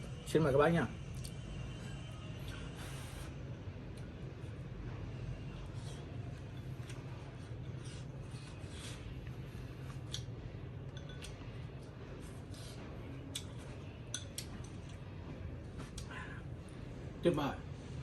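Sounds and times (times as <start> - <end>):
utensils clinking against dishes: 10.9 - 11.5, 13.3 - 15.0.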